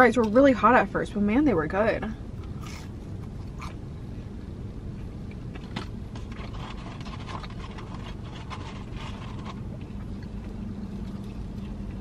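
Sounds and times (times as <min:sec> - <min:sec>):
car cabin hum: 0:00.0 - 0:12.0
chewing crispy chicken: 0:05.2 - 0:12.0.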